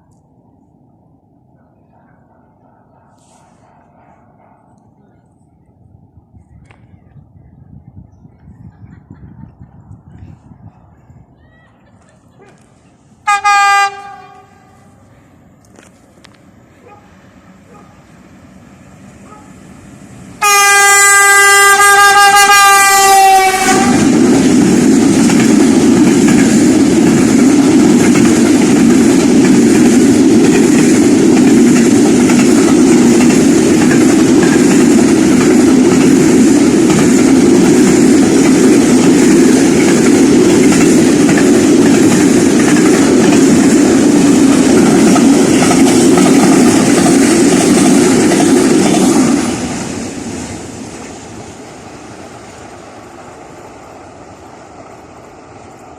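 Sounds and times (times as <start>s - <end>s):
train wheels roaring on rail: 0.0s - 55.9s
train horn long note: 13.2s - 15.0s, 20.4s - 24.2s.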